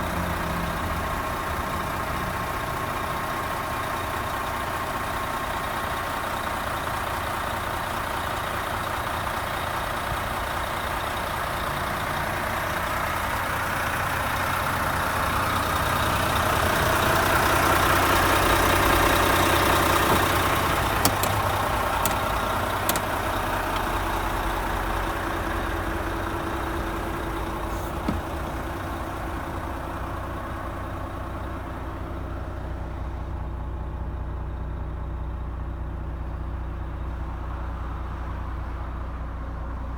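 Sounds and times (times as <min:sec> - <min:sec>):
diesel engine running: 0:00.0 - 0:39.9
sharp clicks: 0:20.1 - 0:24.0.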